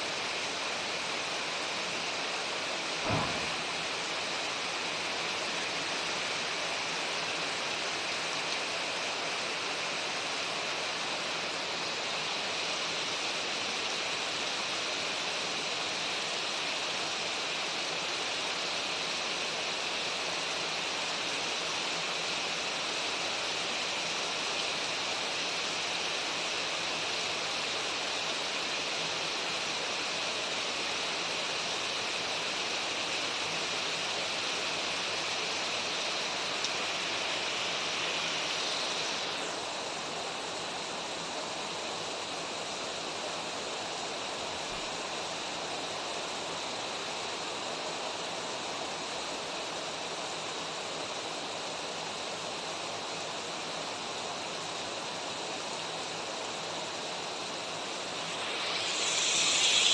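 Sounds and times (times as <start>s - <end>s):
creek water running: 0.0s - 59.9s
rain hissing: 0.0s - 59.9s.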